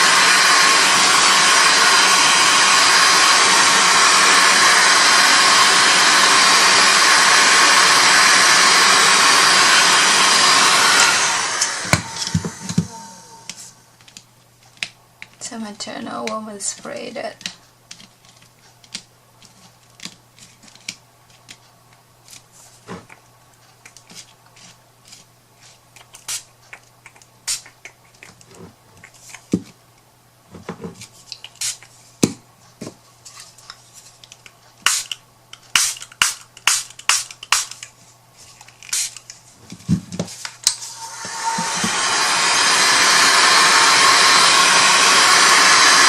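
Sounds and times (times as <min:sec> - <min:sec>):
spray bottle squirts: 0:27.5 - 0:28.4, 0:31.4 - 0:31.9, 0:34.8 - 0:37.8, 0:38.8 - 0:39.3.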